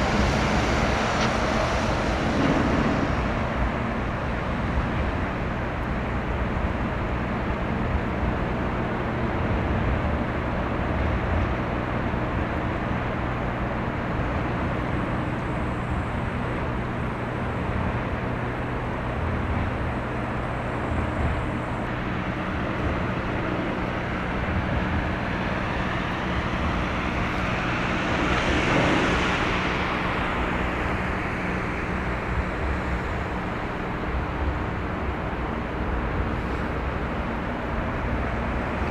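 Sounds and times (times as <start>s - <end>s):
vehicle passing close by: 0.0s - 4.3s
outdoor rumble with low hum: 0.0s - 38.9s.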